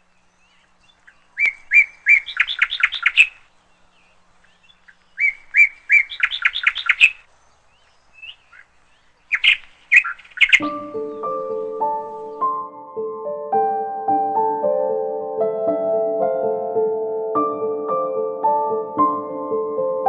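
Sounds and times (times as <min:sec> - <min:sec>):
songbird singing: 0:00.0 - 0:12.8.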